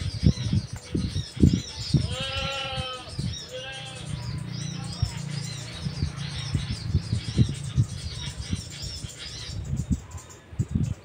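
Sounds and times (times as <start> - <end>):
small bird chirping: 0.0 - 11.0
irregular low thumps: 4.9 - 10.0.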